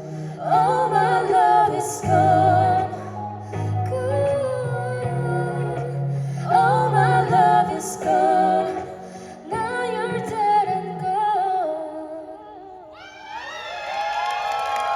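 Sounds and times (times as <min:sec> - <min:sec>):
woman singing wordless melody: 0:00.0 - 0:13.0
crowd cheering: 0:13.0 - 0:14.9.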